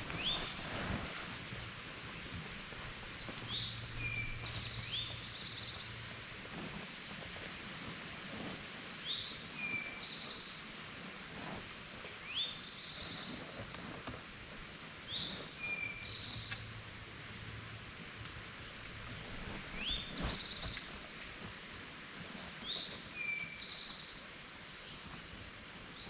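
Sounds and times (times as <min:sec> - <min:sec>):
songbird singing: 0:00.0 - 0:01.1, 0:03.0 - 0:06.6, 0:08.8 - 0:10.7, 0:11.7 - 0:13.8, 0:14.6 - 0:21.2, 0:22.4 - 0:26.0.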